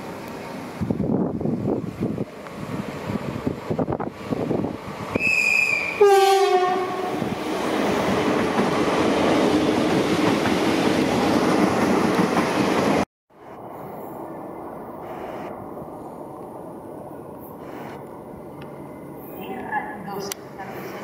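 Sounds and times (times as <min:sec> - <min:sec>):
train wheels rushing on rail: 0:00.0 - 0:14.3
train two-note horn: 0:05.2 - 0:07.2.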